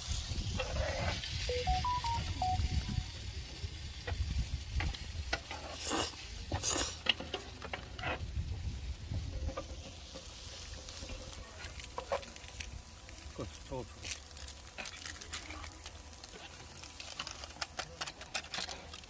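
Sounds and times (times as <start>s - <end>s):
food sizzling in a pan: 0.0s - 7.6s, 8.2s - 17.7s
beeping tones: 1.5s - 3.1s.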